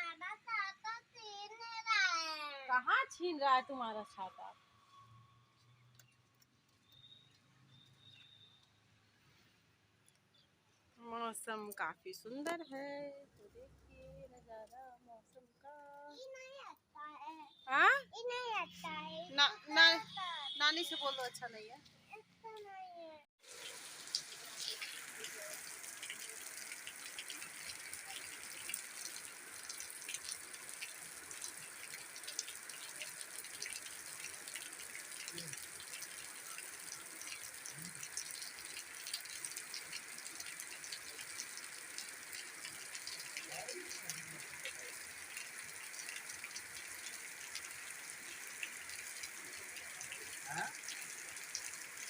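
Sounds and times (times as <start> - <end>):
raindrops ticking on surfaces: 4.9 - 9.4, 23.4 - 52.0
rain falling: 23.4 - 52.0.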